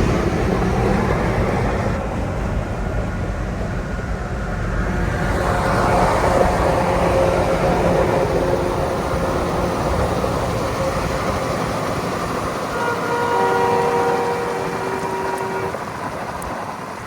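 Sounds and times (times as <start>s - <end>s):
passing road traffic: 0.0s - 17.0s
steady tones: 5.5s - 17.0s.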